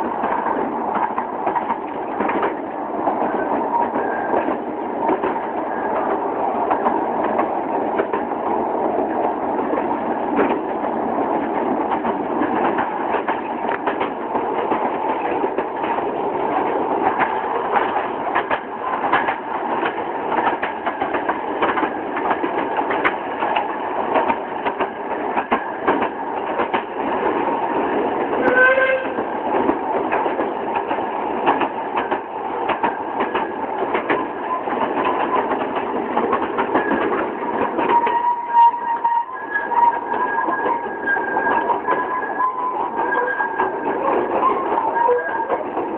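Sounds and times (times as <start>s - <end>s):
train wheels rattling on rails: 0.0s - 45.9s
train horn toot: 28.4s - 29.2s, 37.9s - 43.6s, 44.4s - 45.6s.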